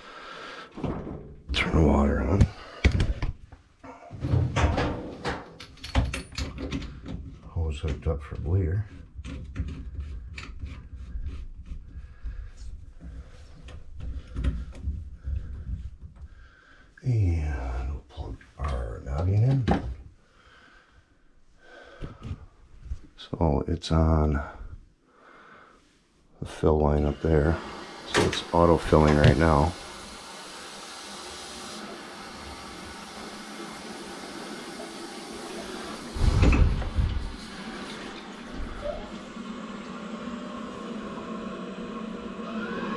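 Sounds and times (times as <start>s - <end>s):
water hissing into a boiler: 26.6s - 42.9s.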